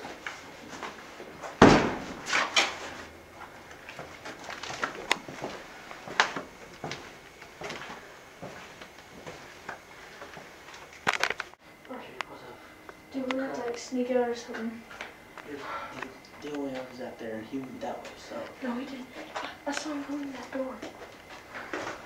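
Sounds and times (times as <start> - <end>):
loud thump: 1.6 - 2.3.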